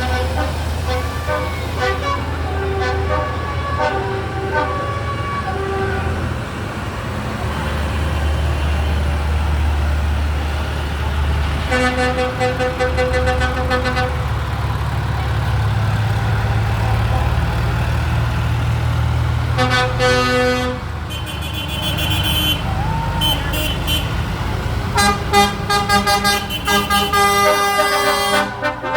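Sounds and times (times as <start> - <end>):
horn sounding: 0.0 - 6.4, 11.6 - 14.3, 19.5 - 24.2, 24.9 - 28.9
tractor engines rumbling: 0.0 - 28.9.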